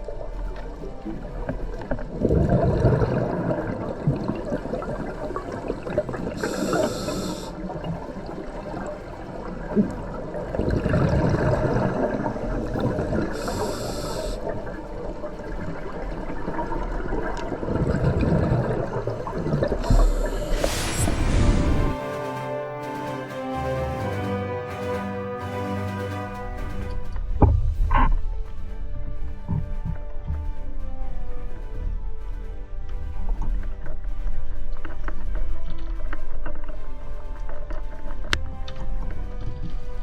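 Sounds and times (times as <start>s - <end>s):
bubbling exhale: 2.3s - 7.7s, 12.8s - 14.5s, 19.4s - 22.0s
regulator inhale hiss: 6.3s - 7.7s, 13.3s - 14.5s, 19.8s - 22.0s.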